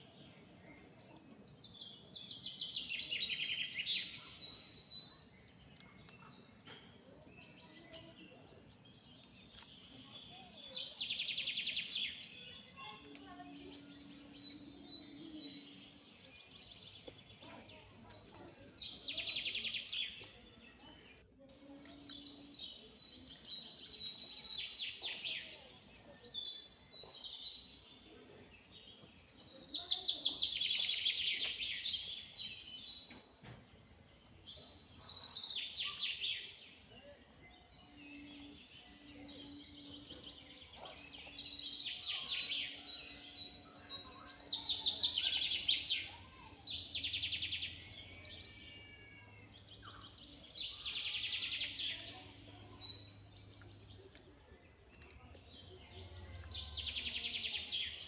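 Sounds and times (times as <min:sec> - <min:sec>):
birds chattering: 0:00.0 - 0:58.0.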